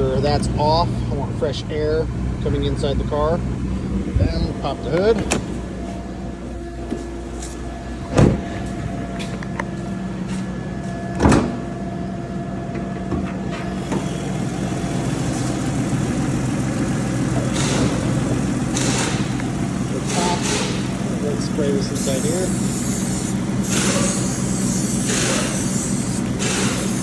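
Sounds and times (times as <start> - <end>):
car hood clunks: 5.2 - 5.6, 8.0 - 8.7, 11.2 - 11.7
car engine idling: 11.5 - 27.0
short hissing bursts: 21.9 - 27.0.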